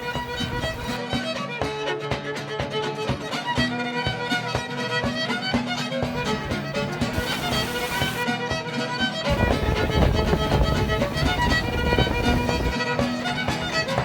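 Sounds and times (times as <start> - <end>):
lively fiddle tune: 0.0 - 14.0
plucked-string accompaniment: 0.0 - 14.0.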